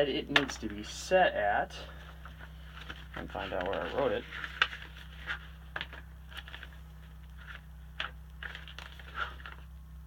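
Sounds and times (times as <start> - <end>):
steady low hum: 0.0 - 10.0
handling clicks and rustles: 2.0 - 9.7.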